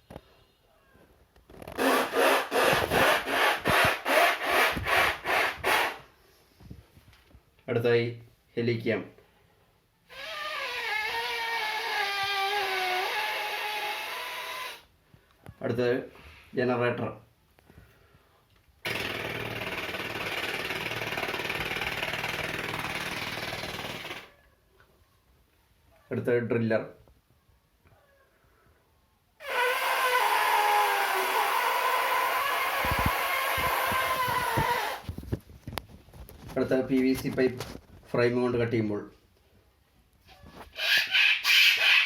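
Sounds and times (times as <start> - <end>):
man imitating a hand saw: 1.8 - 6.0, 10.1 - 14.8, 18.9 - 24.3, 29.4 - 35.0, 40.7 - 42.0.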